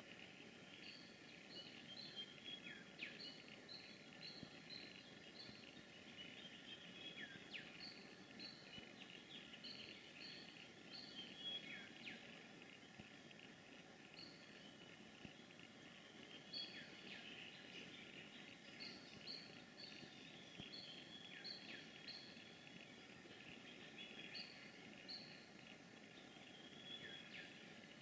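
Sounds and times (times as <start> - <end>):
soft background hiss: 0.0 - 28.0.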